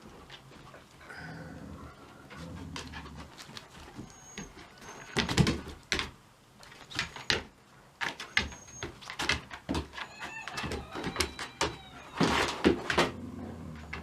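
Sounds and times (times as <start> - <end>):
dog whining: 1.1 - 5.3, 8.2 - 9.2, 9.9 - 14.0
dogs scuffling: 2.1 - 14.0.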